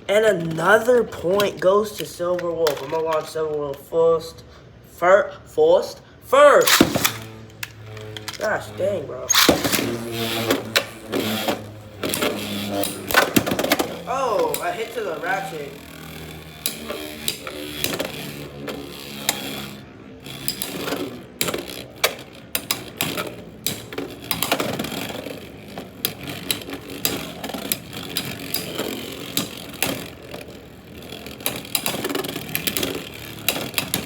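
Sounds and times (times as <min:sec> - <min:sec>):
spinning tops whirring: 0:06.4 - 0:34.0
tops clacking together: 0:06.6 - 0:08.6, 0:09.3 - 0:34.0.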